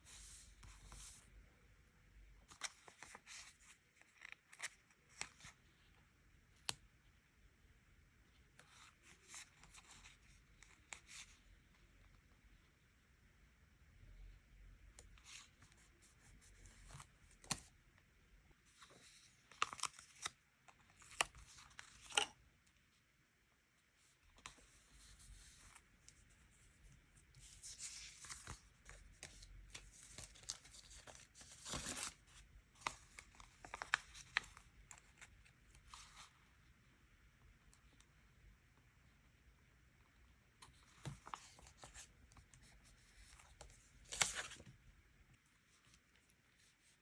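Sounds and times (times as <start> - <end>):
paper rustling: 18.8 - 22.3, 27.3 - 36.3, 40.8 - 44.7.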